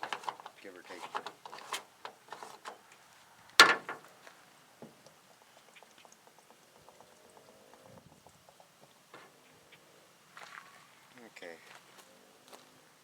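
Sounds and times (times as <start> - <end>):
loud clunk: 3.6 - 4.1
plastic jug clicks and knocks: 3.6 - 4.1
liquid pouring patter: 3.9 - 9.1.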